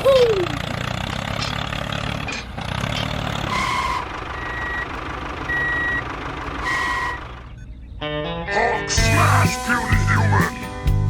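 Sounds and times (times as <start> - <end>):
truck engine running: 0.0 - 8.0, 9.0 - 11.0
reversing alarm beeping: 3.5 - 7.8.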